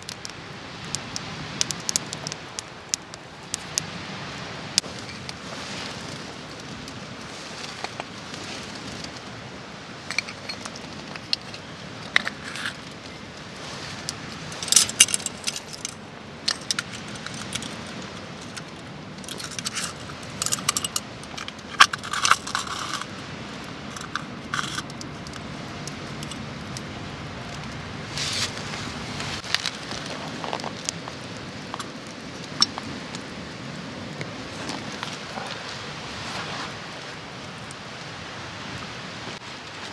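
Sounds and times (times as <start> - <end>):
steady background hiss: 0.0 - 39.9
metallic clinks of camp gear: 10.0 - 13.1, 13.8 - 26.9
rustling: 10.0 - 32.0.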